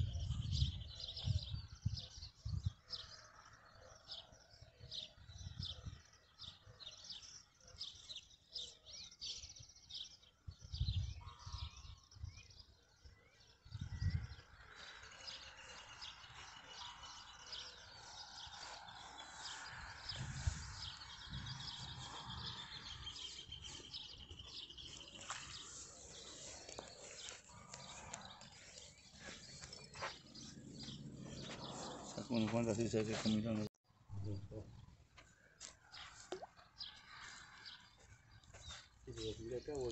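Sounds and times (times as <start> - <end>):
small birds chirping: 0.0 - 39.9
low rumbles on microphone: 19.6 - 23.2.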